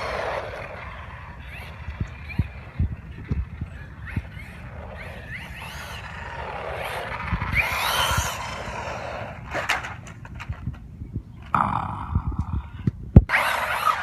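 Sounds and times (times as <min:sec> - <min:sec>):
electric motor whine: 0:00.0 - 0:10.6, 0:13.2 - 0:14.0
tyres on gravel: 0:00.0 - 0:10.9.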